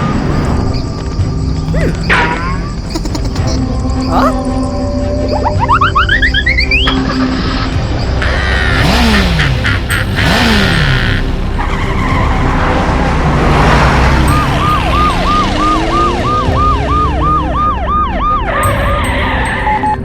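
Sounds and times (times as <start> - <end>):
emergency vehicle siren: 10.2 - 20.0.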